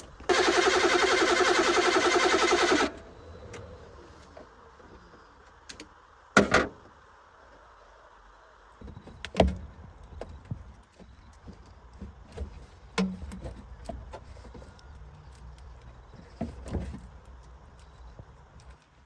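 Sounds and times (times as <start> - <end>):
low steady rumble: 0.0 - 6.4.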